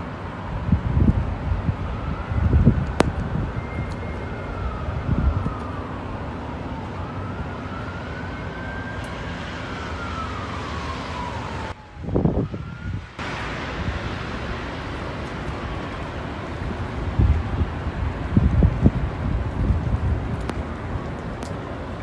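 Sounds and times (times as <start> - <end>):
windy rumble: 0.0 - 22.0
siren wailing: 1.1 - 13.3.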